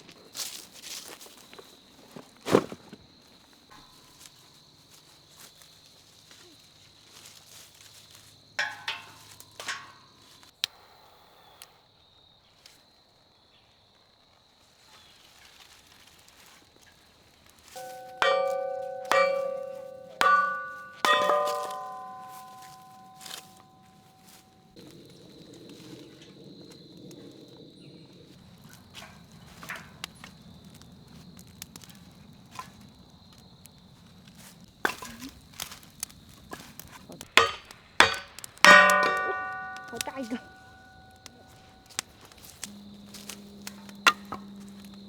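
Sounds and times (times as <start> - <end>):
ringing metallic strikes: 17.8 - 24.7, 37.4 - 44.9.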